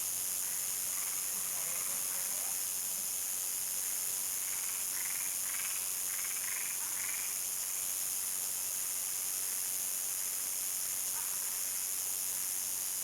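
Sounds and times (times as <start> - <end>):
crickets chirping: 0.1 - 13.0.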